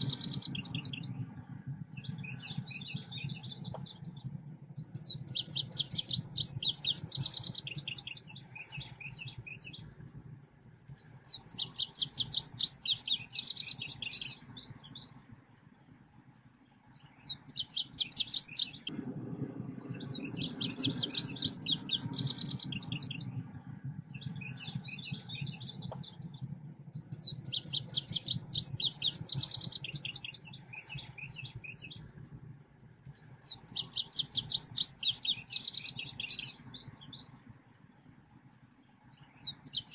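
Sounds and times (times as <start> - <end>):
steady low hum: 0.0 - 5.6, 6.2 - 17.2, 18.8 - 33.7
recorded bird song chirping: 0.0 - 39.9.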